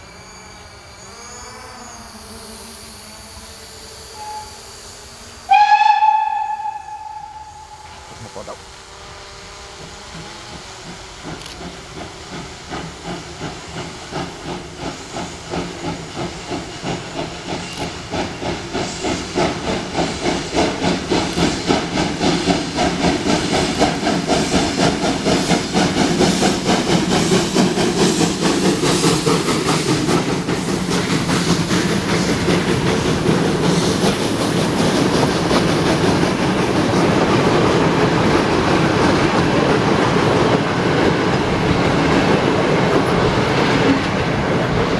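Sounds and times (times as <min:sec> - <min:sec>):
rush of steam and clatter: 0:00.0 - 0:44.9
steam locomotive exhaust chuffs: 0:02.1 - 0:44.9.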